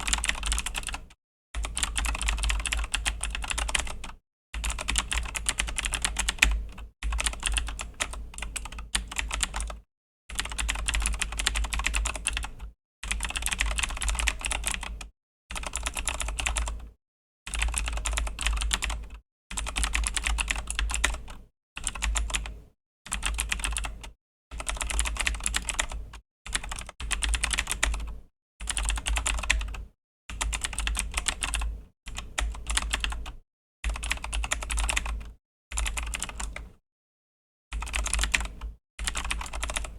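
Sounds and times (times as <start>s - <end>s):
fast typing on mechanical keyboard: 0.0s - 22.5s, 23.1s - 36.7s, 37.7s - 39.9s.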